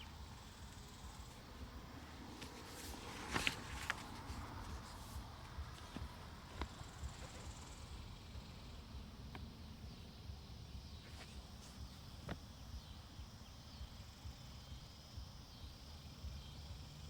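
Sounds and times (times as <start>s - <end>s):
crackly rustle: 0.0s - 8.6s, 11.0s - 12.5s.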